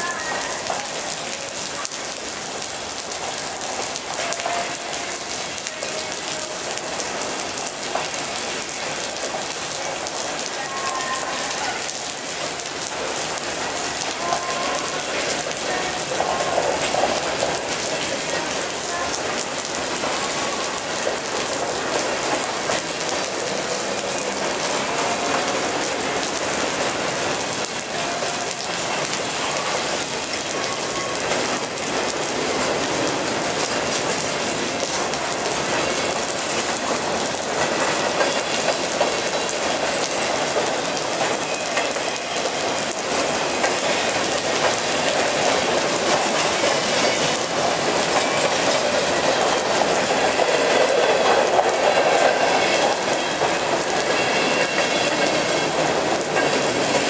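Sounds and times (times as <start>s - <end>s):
heavy rain hissing: 0.0s - 57.0s
freight cars rolling over rail joints: 0.1s - 57.0s.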